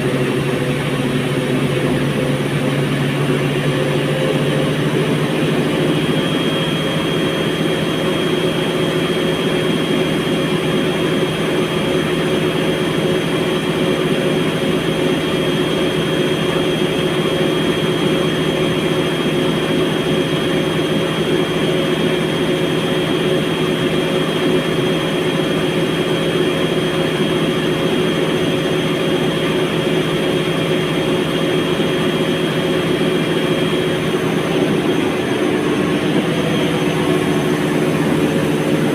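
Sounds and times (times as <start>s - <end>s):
washing machine drum spinning: 0.0s - 8.8s, 31.0s - 38.9s.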